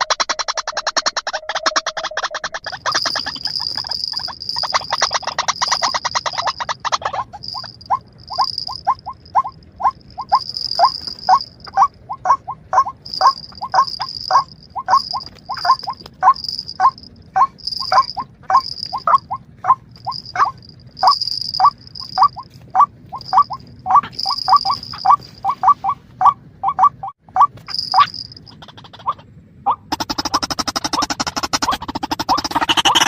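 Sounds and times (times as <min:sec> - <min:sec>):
birds chirping: 0:00.0 - 0:33.0
high buzzing bird trill: 0:00.0 - 0:33.0.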